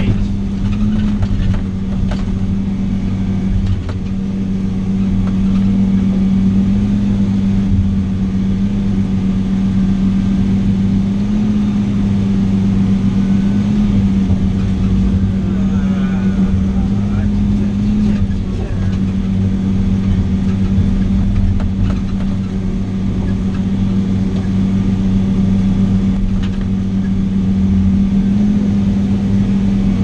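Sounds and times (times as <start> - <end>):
diesel engine droning: 0.0 - 30.0.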